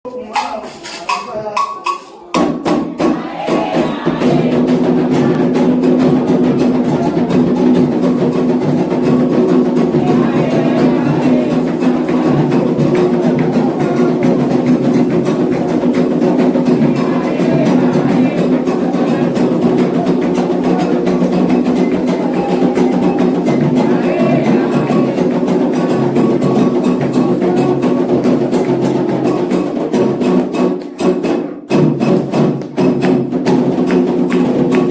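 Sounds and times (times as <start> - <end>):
hand drums playing fast: 0.1 - 34.9
voices singing: 0.2 - 29.9.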